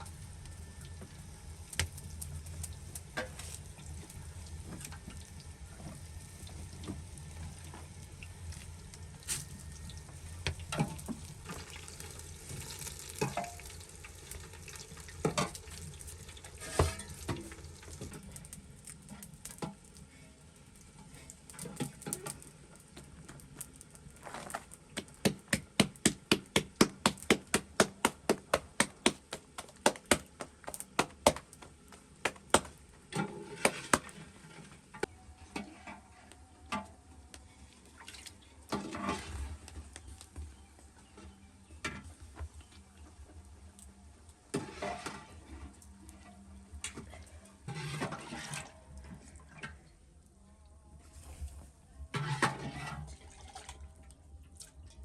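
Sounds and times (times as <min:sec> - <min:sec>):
stirring: 0:24.2 - 0:34.4
knife chopping on a board: 0:25.0 - 0:31.6.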